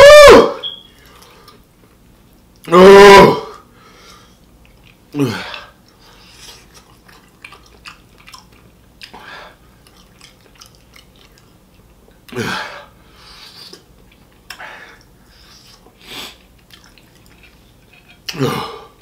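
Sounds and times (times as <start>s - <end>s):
person chewing with mouth clicks: 4.1s - 12.4s, 13.2s - 19.0s.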